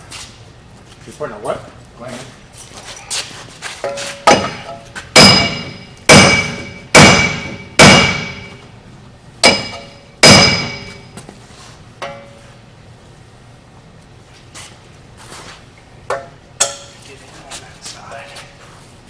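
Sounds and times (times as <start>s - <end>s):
hammer striking metal hub: 3.9s - 8.7s, 9.4s - 11.2s, 12.0s - 12.4s, 16.1s - 17.0s.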